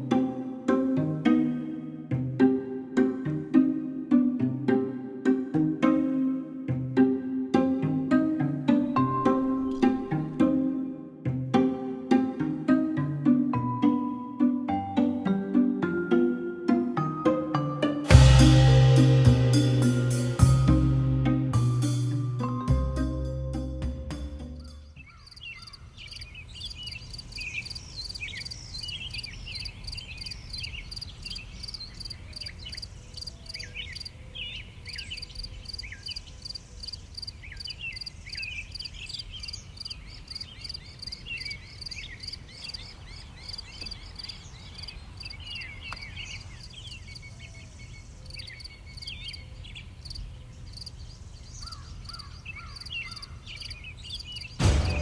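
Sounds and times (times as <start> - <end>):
small birds chirping: 24.4 - 54.6
low rumble: 54.6 - 55.0.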